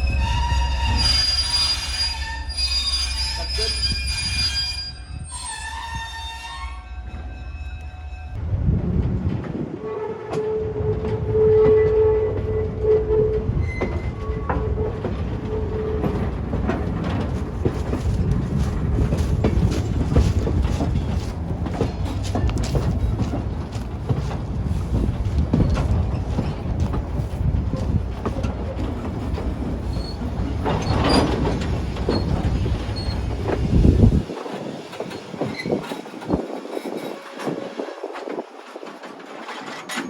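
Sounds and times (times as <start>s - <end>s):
wheel squeal: 0.0s - 8.4s, 29.8s - 33.8s, 35.0s - 37.8s
train cars rumbling over track: 0.0s - 40.0s.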